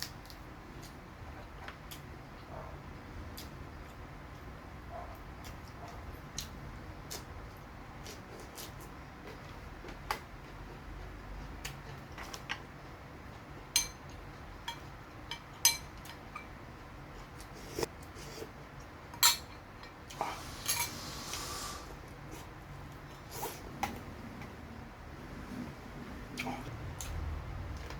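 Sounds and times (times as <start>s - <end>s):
utensils clinking on plate: 13.8s - 14.1s, 14.7s - 16.5s, 20.6s - 21.0s.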